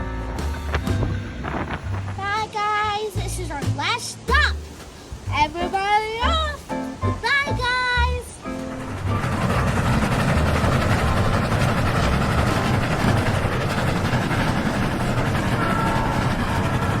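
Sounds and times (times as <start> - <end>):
train rolling past: 4.2 - 17.0.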